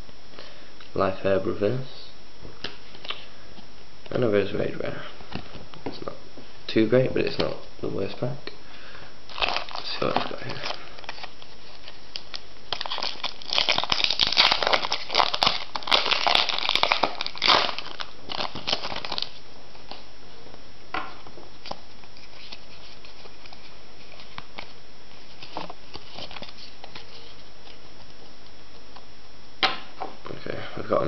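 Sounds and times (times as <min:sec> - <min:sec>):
foil wrapper crinkling and tearing: 0:09.3 - 0:20.1.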